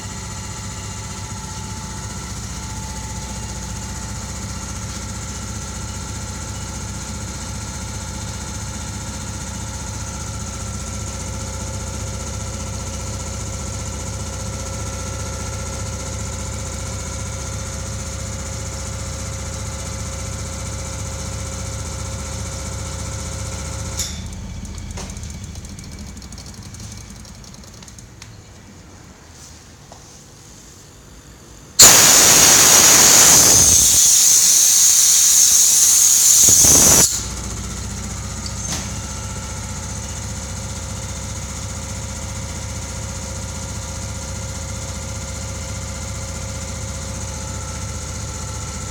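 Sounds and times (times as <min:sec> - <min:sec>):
air compressor running: 0:00.0 - 0:28.2, 0:31.4 - 0:48.9
compressor whining tones: 0:31.7 - 0:41.6.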